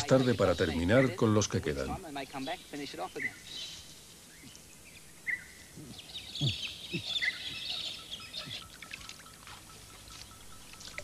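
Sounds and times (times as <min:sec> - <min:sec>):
birds chirping: 0:00.0 - 0:11.0
low falling bird calls: 0:02.4 - 0:11.0
rustling in dry vegetation: 0:06.9 - 0:11.0.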